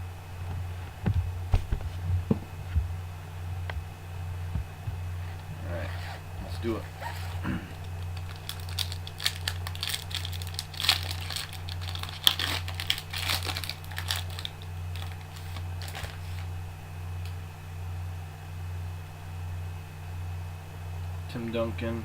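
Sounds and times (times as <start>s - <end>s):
steady low hum: 0.0s - 22.0s
packaging crinkling and tearing: 5.2s - 16.5s.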